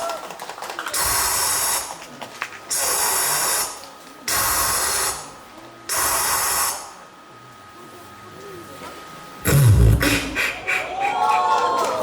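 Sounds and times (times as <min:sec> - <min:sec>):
beatboxer's spray-like hisses: 0:09.5 - 0:10.9.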